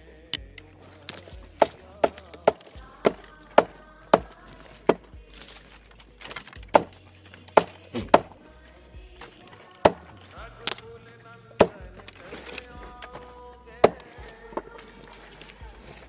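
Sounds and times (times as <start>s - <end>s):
sharp chopping strikes: 6.3s - 8.3s.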